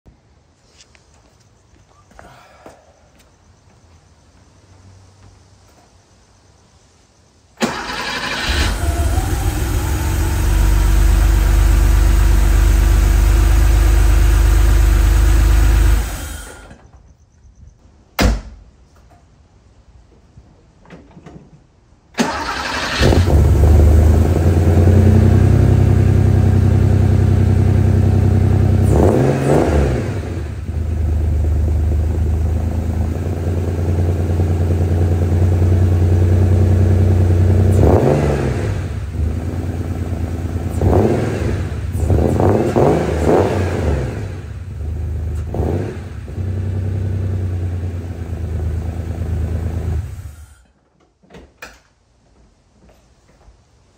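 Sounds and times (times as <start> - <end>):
car engine starting and revving: 7.6 - 16.7, 22.2 - 50.4.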